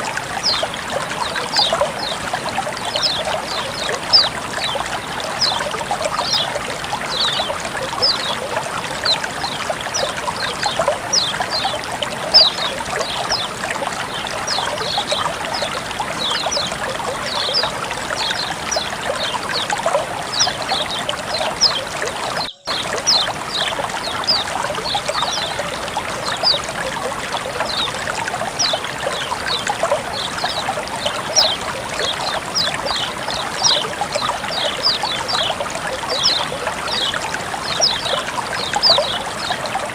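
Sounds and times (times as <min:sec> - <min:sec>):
water trickling: 0:00.0 - 0:39.9
plinks and bubbling drops: 0:01.3 - 0:02.2.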